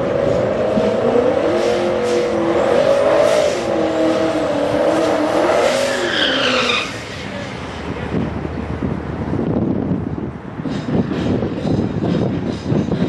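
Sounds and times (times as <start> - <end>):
car engine at high revs: 0.0 - 8.2.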